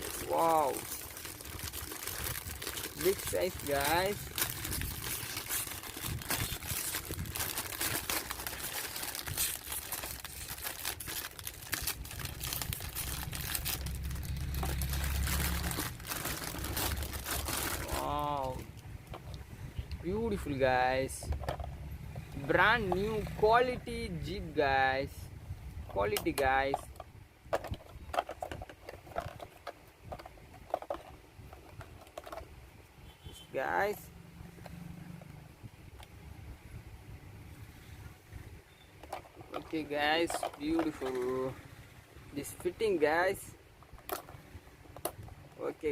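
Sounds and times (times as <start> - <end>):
packaging crinkling and rustling: 0.0 - 19.4, 39.0 - 41.4
low rumble: 0.8 - 20.0.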